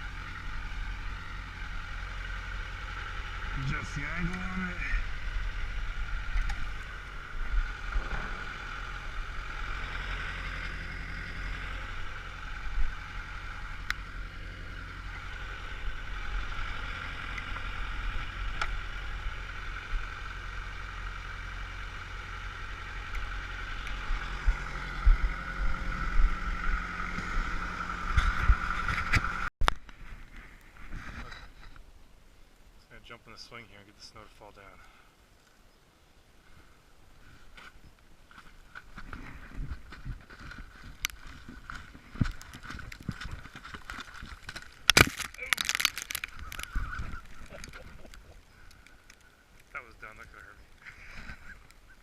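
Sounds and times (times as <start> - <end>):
engine knocks: 0.0 - 29.5
high whine: 0.0 - 30.7
tractor diesel engine running: 0.0 - 31.6, 38.3 - 52.0.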